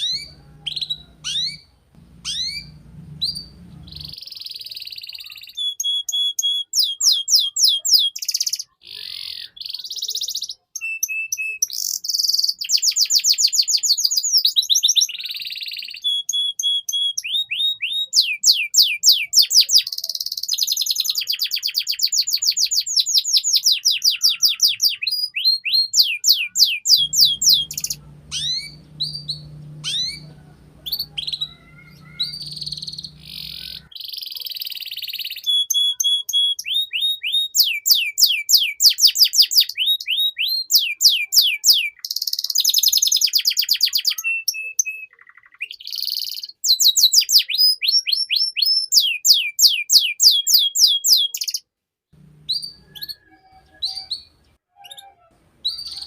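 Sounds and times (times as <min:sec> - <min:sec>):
faint low hum: 0:00.0 - 0:04.2, 0:27.0 - 0:33.9, 0:52.2 - 0:53.6
canary singing trills: 0:00.0 - 0:51.6, 0:52.2 - 0:56.0.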